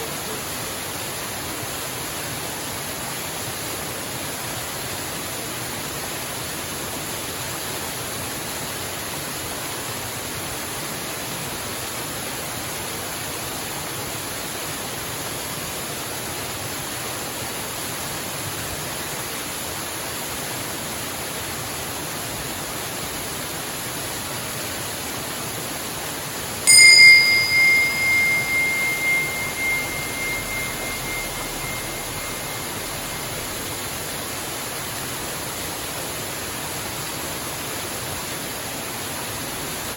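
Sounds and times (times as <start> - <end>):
meditation bell ringing: 26.7 - 34.0.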